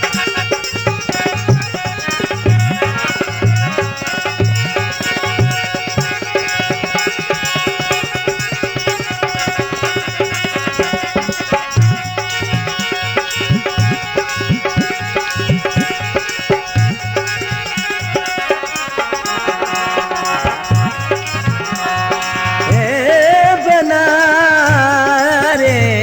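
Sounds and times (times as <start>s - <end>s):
hand drums playing: 0.0s - 26.0s
person singing: 18.2s - 26.0s.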